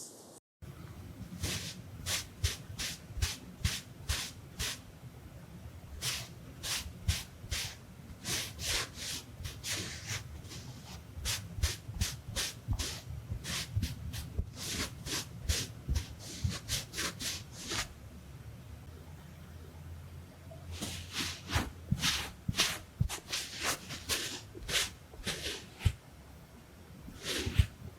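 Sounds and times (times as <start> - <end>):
scratchy swishes on lens: 1.3 - 4.8, 6.0 - 17.9, 20.8 - 26.0, 27.1 - 27.9.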